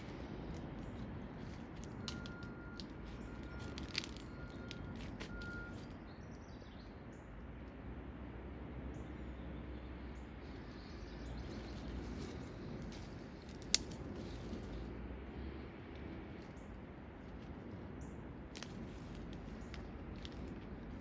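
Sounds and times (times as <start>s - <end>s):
low outdoor rumble: 0.0s - 21.0s
birds chirping: 10.1s - 14.8s.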